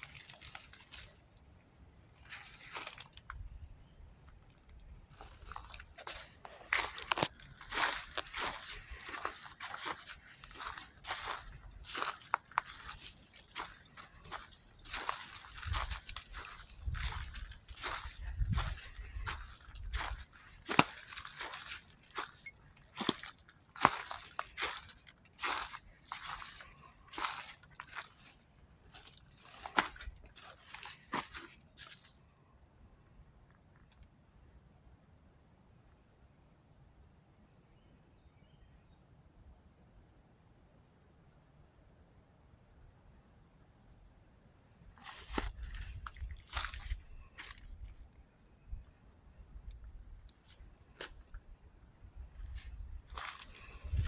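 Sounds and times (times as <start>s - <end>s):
crunching and rustling: 0.0s - 1.4s, 2.0s - 32.2s, 44.9s - 48.7s, 49.6s - 54.0s.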